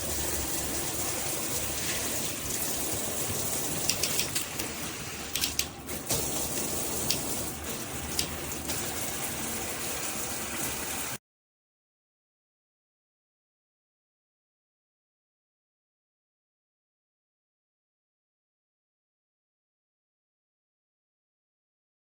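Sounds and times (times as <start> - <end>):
shower water spraying: 0.0 - 11.2
sharp clicks: 5.3 - 5.7.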